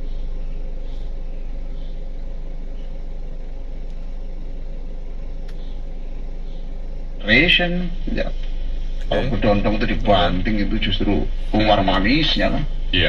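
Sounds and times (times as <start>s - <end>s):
car engine idling: 0.0s - 13.0s
faint click: 5.4s - 5.7s.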